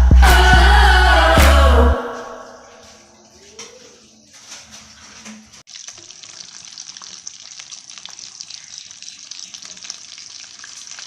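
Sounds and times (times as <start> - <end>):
cutlets sizzling in hot oil: 5.6 - 11.0.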